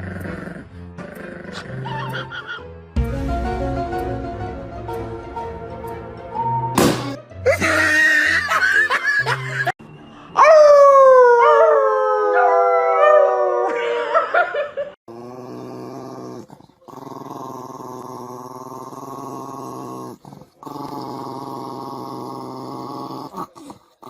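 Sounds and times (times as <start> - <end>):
dog howling: 10.4 - 14.0.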